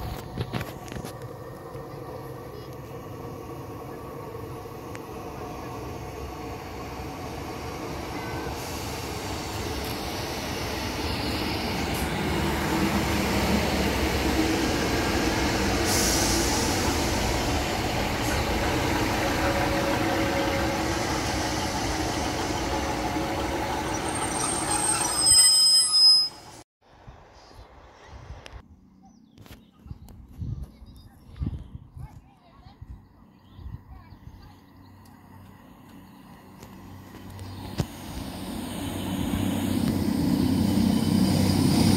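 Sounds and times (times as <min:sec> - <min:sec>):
diesel train engine and wheels: 0:00.0 - 0:41.9
station background: 0:01.7 - 0:24.9
train squealing: 0:03.7 - 0:26.6, 0:37.2 - 0:41.9.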